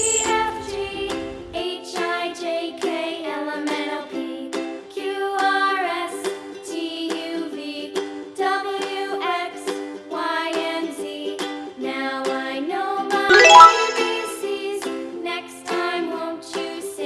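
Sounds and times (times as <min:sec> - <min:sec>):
ukulele tune: 0:00.2 - 0:17.0
person singing: 0:13.3 - 0:14.7.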